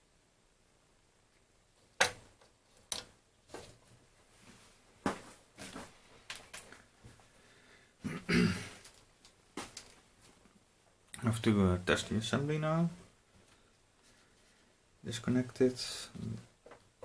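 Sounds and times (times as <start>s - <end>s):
person clearing throat: 8.0s - 8.8s.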